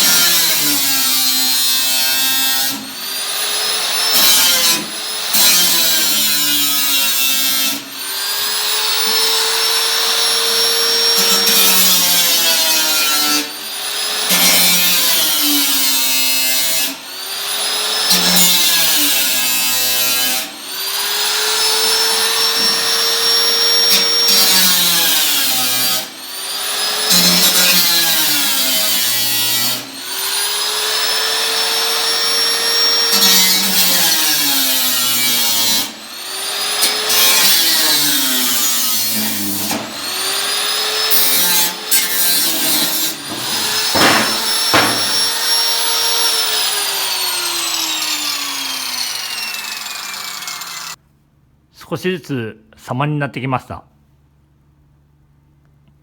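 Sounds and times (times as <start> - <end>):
power tool motor whining: 39.7 - 51.0.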